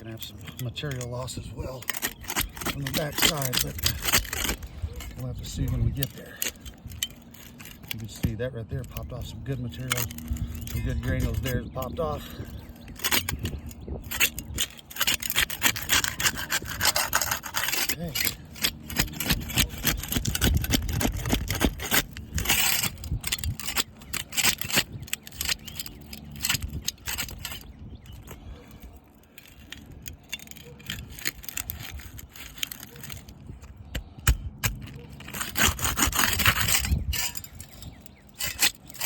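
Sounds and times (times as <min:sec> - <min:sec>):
putty knife scraping shingles: 0:00.0 - 0:39.0.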